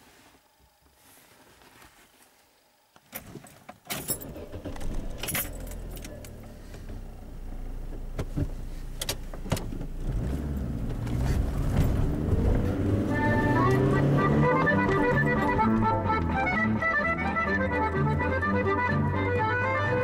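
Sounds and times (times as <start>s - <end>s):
car keys jangling: 3.9s - 6.6s
car engine starting and running: 4.0s - 20.0s.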